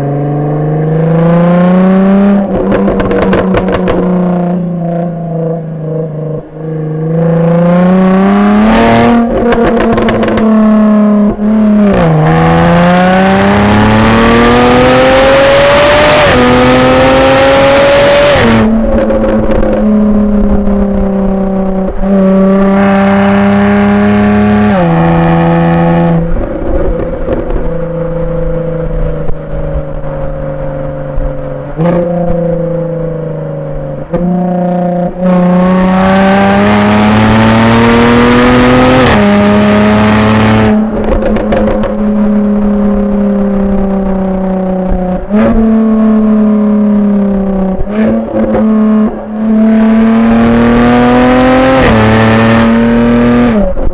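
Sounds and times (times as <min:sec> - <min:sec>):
car engine accelerating: 0:00.0 - 0:53.9
exhaust cracks: 0:02.3 - 0:04.3, 0:26.0 - 0:32.6, 0:40.3 - 0:45.6.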